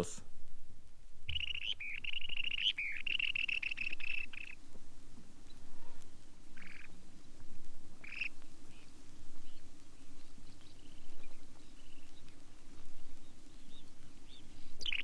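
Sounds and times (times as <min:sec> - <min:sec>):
shorebird chattering calls: 0:01.3 - 0:04.6, 0:06.6 - 0:06.9, 0:08.0 - 0:08.3.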